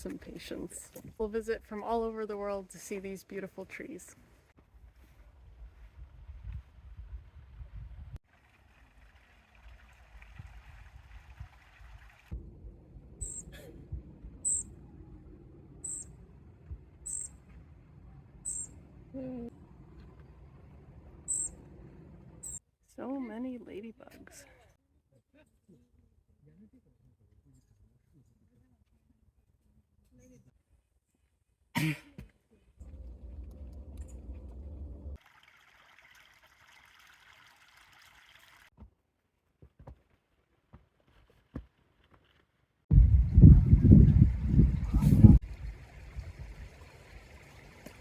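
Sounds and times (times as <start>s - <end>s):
stream water trickling: 8.2s - 12.4s, 32.8s - 38.7s, 45.4s - 48.0s
low rumble: 12.3s - 22.5s, 32.8s - 35.2s, 42.9s - 46.8s
small bird squeaky call: 13.2s - 13.5s, 14.4s - 14.7s, 15.8s - 16.1s, 17.0s - 17.4s, 18.4s - 18.7s, 21.3s - 21.6s.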